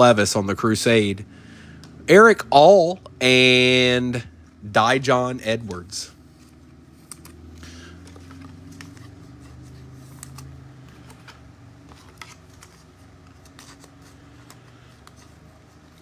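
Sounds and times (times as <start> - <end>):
low steady hum: 0.0 - 16.0
trading cards clicking and sliding: 5.6 - 16.0.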